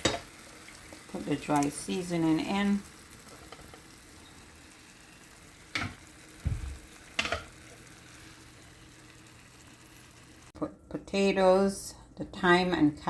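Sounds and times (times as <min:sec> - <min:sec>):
food sizzling in a pan: 0:00.0 - 0:10.6
pot and utensils clattering: 0:05.7 - 0:07.6.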